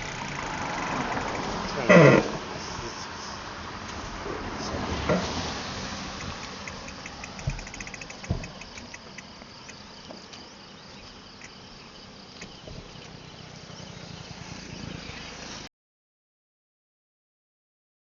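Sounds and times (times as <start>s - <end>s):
insect chirping: 0.0s - 15.7s
low thumps: 6.2s - 9.2s.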